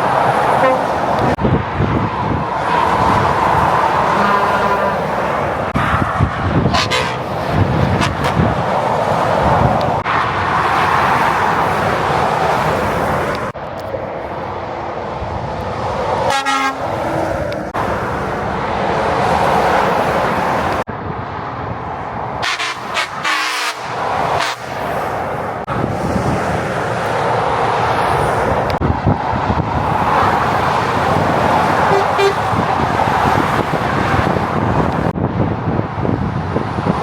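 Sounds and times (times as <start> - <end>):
heavy motorway traffic roar: 0.0 - 37.0
vehicle horn blast: 0.5 - 1.3, 6.7 - 8.5, 16.3 - 17.0, 22.4 - 24.6, 31.8 - 32.9.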